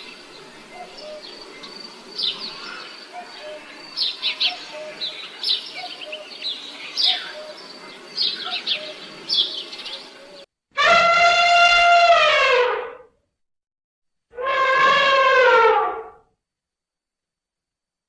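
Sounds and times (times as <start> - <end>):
birds chirping: 0.0 - 10.5.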